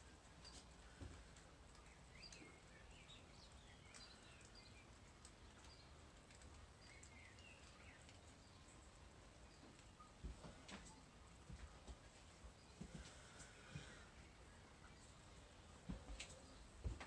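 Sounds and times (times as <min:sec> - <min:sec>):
faint bird chirps: 0:06.7 - 0:11.3.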